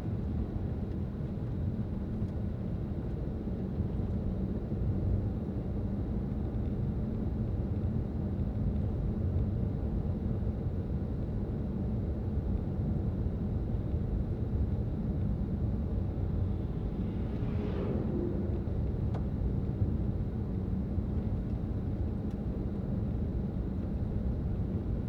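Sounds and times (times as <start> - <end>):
car road and engine rumble: 14.1 - 22.6.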